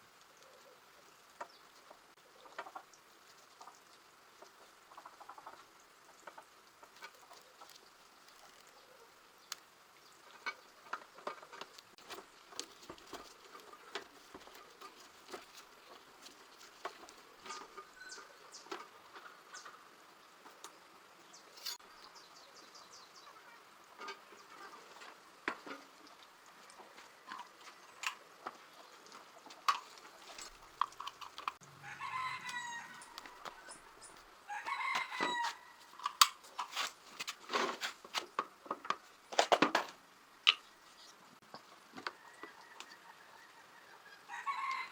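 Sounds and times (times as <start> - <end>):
clicks of small parts and tools: 36.0 - 37.4.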